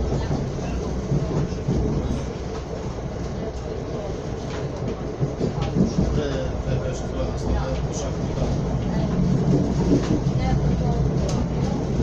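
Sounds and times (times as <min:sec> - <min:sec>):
train rumble inside carriage: 0:00.0 - 0:12.0.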